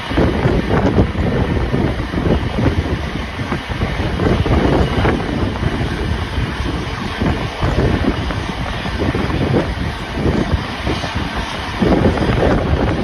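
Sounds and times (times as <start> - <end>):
train carriage rumbling on rails: 0.0 - 13.0
wind buffeting microphone: 0.0 - 13.0.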